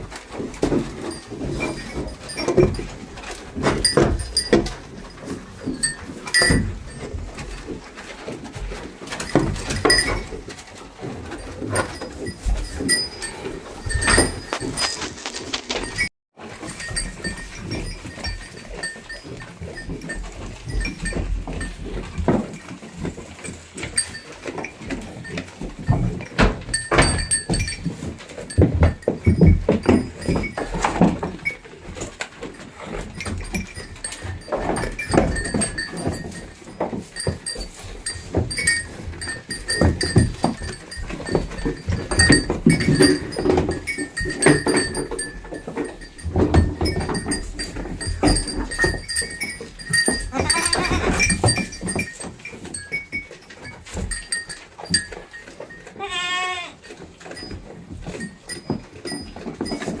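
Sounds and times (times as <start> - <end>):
rustling: 0.0 - 60.0
goat bleating: 50.3 - 51.3, 56.0 - 56.8.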